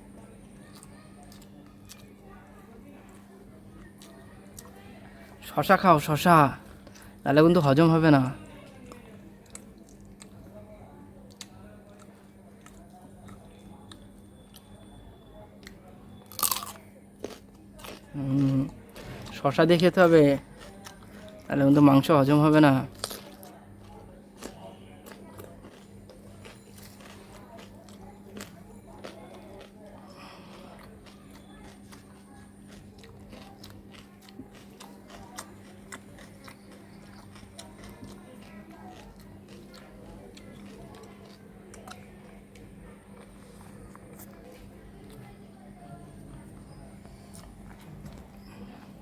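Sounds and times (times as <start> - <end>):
person chewing: 0.6 - 2.1, 11.3 - 14.7, 15.6 - 19.4, 20.4 - 21.7, 22.9 - 45.2, 46.5 - 49.0
crunchy bite: 15.6 - 19.4, 22.9 - 42.1.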